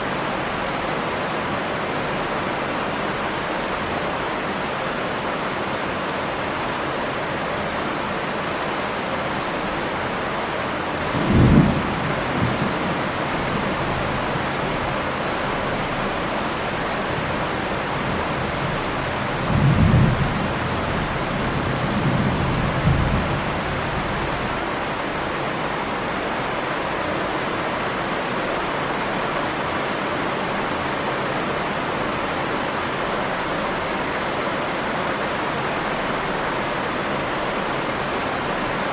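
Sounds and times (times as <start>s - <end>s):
heavy rain: 0.0s - 38.9s
low rolls of thunder: 11.0s - 14.2s, 19.4s - 24.5s.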